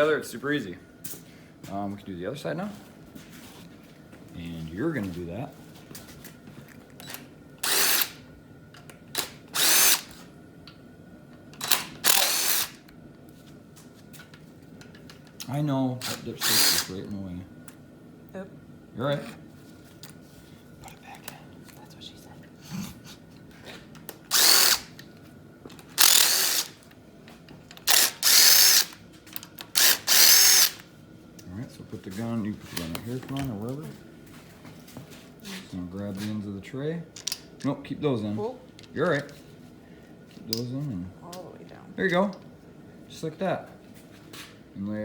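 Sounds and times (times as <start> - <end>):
impact gun whirring: 7.1 - 8.2, 9.1 - 10.2, 11.6 - 12.8, 16.0 - 17.0, 24.2 - 25.0, 25.9 - 26.8, 27.8 - 30.8.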